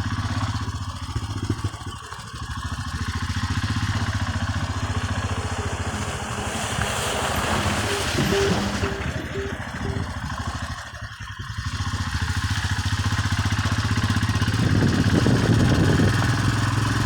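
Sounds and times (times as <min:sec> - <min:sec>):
motorcycle engine running: 0:00.0 - 0:17.0
short beeps: 0:04.8 - 0:10.6.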